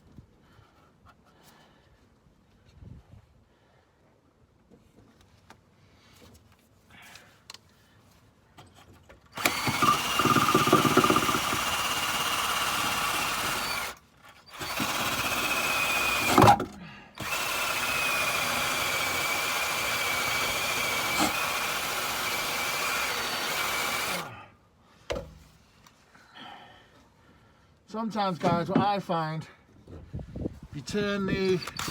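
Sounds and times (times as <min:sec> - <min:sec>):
power drill whining: 0:09.4 - 0:24.4.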